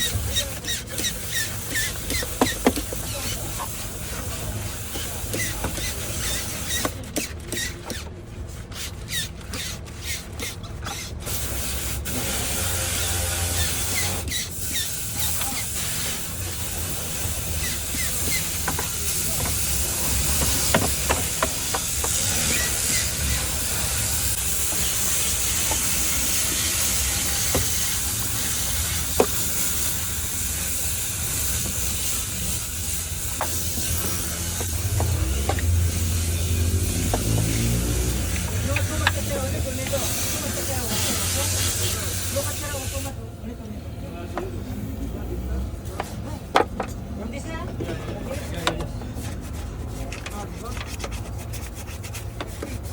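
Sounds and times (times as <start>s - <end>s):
cleaning equipment spraying hiss: 11.3s - 43.2s.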